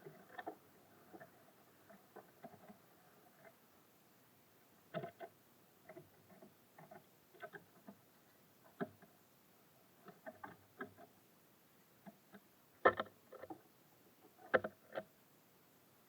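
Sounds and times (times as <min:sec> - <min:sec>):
birds tapping and pecking on feeder: 0:01.9 - 0:02.8, 0:12.0 - 0:13.6, 0:14.4 - 0:15.1.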